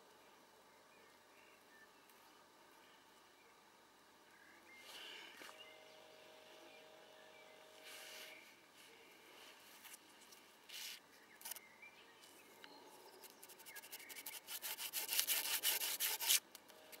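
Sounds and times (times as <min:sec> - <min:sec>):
hand drill rubbing scrape: 0:07.7 - 0:08.5, 0:13.2 - 0:16.4.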